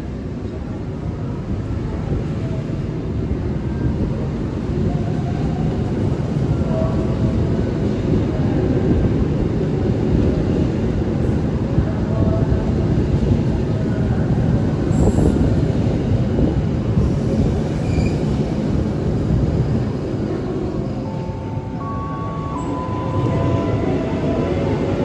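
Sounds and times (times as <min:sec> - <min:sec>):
train wheels rumbling on rails: 0:00.0 - 0:25.0
high wheel squeals: 0:17.2 - 0:19.2.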